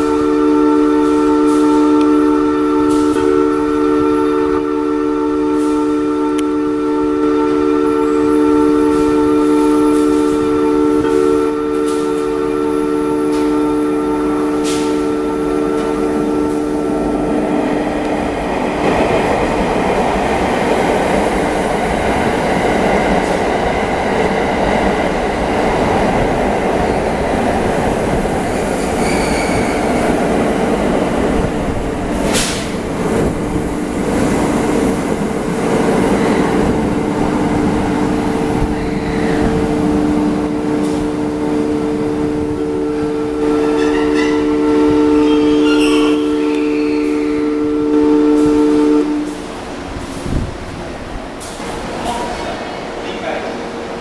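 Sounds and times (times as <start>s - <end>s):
train wheels rolling: 14.4s - 47.5s.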